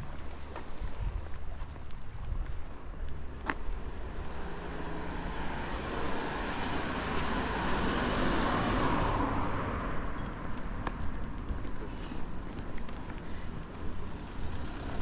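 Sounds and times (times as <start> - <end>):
car driving past: 3.7 - 10.2.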